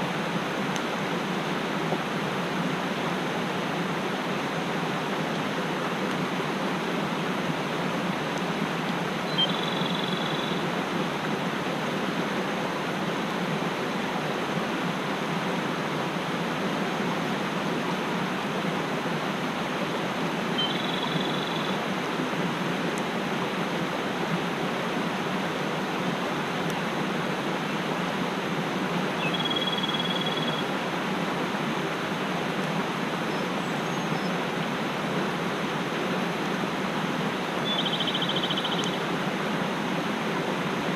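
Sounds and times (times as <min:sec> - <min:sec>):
mountain stream rushing: 0:00.0 - 0:40.9
bird short high call: 0:20.6 - 0:21.8, 0:37.6 - 0:39.0.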